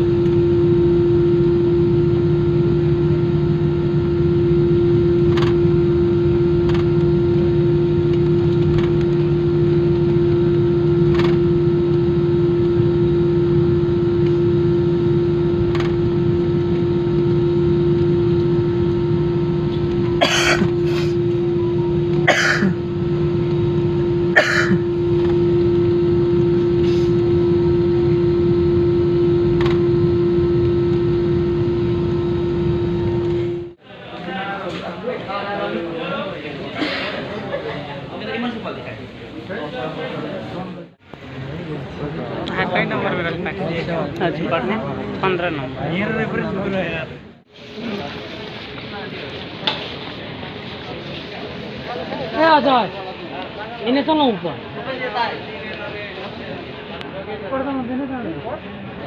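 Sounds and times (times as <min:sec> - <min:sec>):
airliner cabin drone: 0:00.0 - 0:33.9.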